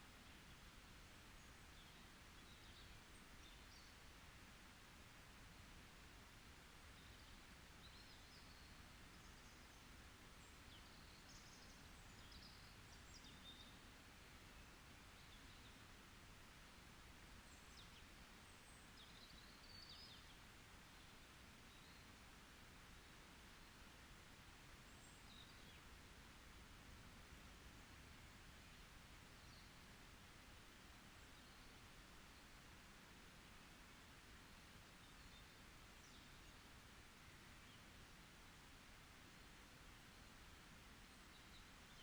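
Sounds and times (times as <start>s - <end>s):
soft steady hiss: 0.0s - 42.0s.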